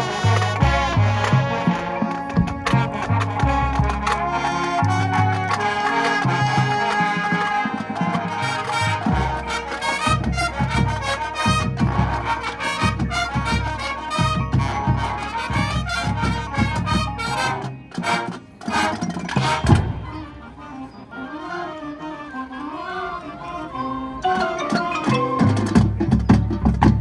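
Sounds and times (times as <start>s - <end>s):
bass drum strokes: 0.0s - 6.8s
band playing loud hits: 0.0s - 20.5s
trumpet and trombone chords: 0.0s - 21.1s.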